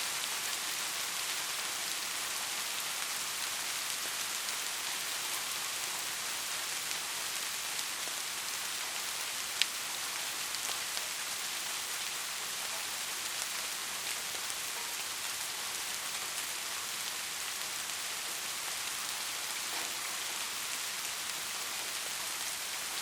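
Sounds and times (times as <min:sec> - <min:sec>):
steady rain hiss: 0:00.0 - 0:23.0.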